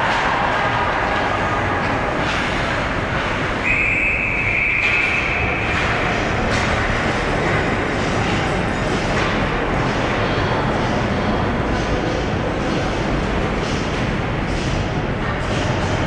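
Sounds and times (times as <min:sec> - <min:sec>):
ice hockey game rushing noise: 0:00.0 - 0:16.0
referee's whistle: 0:03.6 - 0:05.7.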